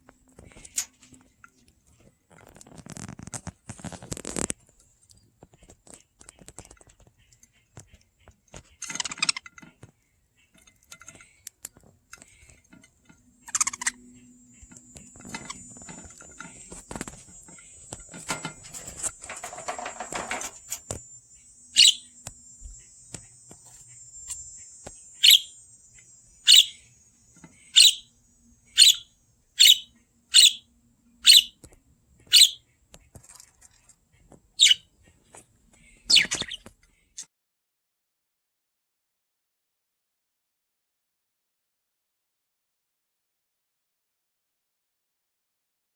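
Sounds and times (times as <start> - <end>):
budgerigars chirping: 21.8 - 22.1, 25.2 - 25.5, 26.4 - 26.9, 27.6 - 28.1, 28.7 - 31.6, 32.3 - 32.6, 34.6 - 34.9, 36.0 - 36.6.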